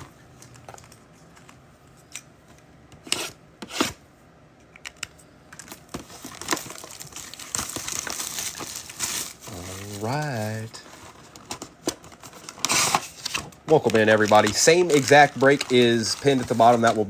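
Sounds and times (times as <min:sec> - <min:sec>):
plastic crinkling: 0:05.6 - 0:17.0
plastic wrapping tearing: 0:05.7 - 0:17.0.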